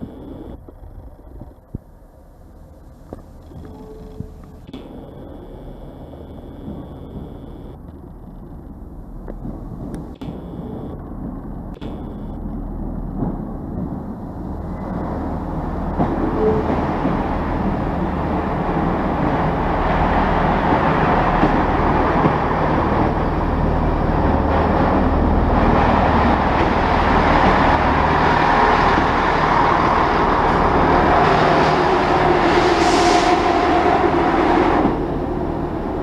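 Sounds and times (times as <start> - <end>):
train running noise: 0.0 - 36.0.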